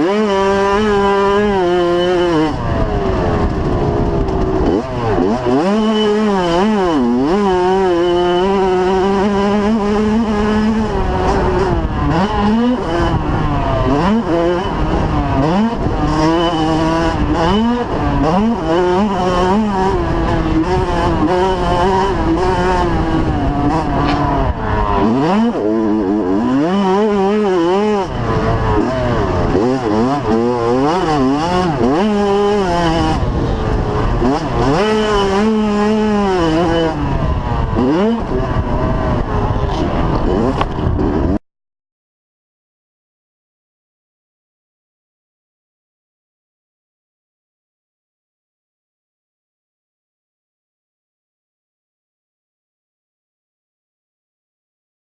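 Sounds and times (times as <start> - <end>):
motocross bikes revving: 0.0 - 41.4.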